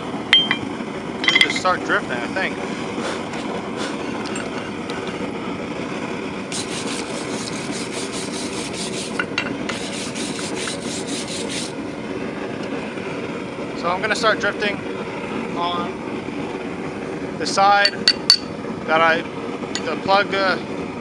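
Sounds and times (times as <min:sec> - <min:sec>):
steady rushing noise: 0:00.0 - 0:21.0
scraping strokes on steel: 0:06.5 - 0:11.8.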